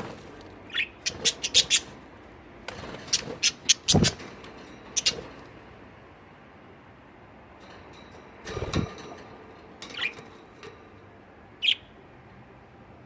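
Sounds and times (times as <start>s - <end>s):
budgerigars chirping: 0.7s - 2.0s, 3.0s - 4.2s, 5.0s - 5.2s.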